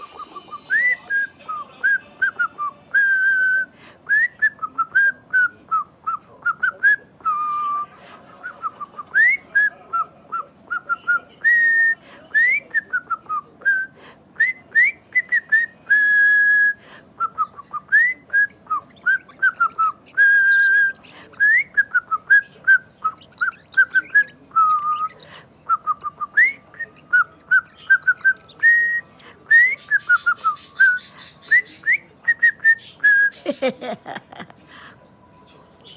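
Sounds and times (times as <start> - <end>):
person whistling a tune: 0.0 - 1.6.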